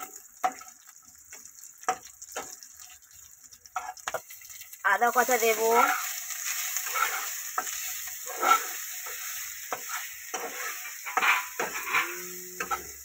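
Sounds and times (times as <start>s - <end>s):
spices sizzling in hot oil: 0.0s - 13.0s
steel spatula scraping a pan: 3.8s - 4.3s, 5.2s - 13.0s.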